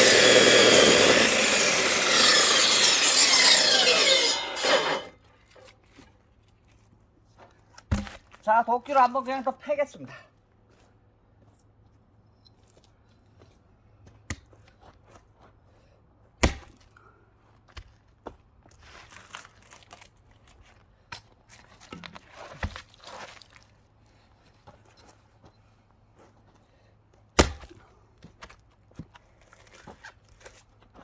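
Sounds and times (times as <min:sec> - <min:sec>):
wood scraping: 0:00.0 - 0:05.1
axe chopping wood log: 0:16.4 - 0:16.8, 0:27.4 - 0:27.8.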